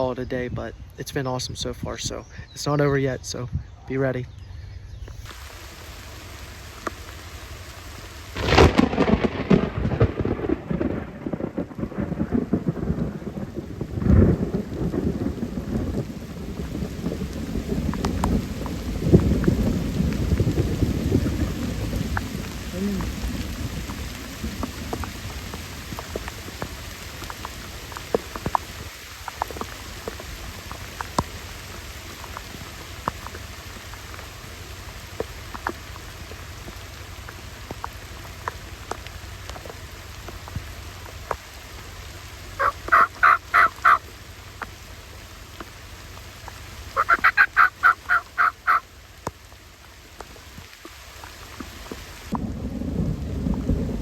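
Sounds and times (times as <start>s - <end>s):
steady rain: 0.0s - 54.0s
low thunder rumble: 6.3s - 35.1s, 52.2s - 54.0s
turkey calling: 42.6s - 44.1s, 46.9s - 48.9s.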